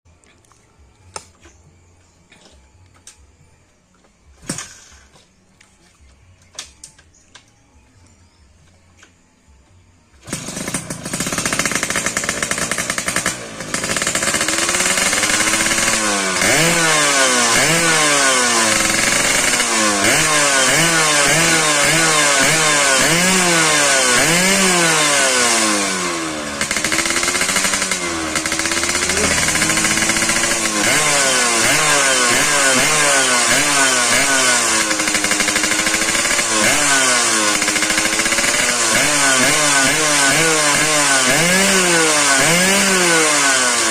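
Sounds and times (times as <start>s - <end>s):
two-stroke engine revving: 10.1s - 43.9s.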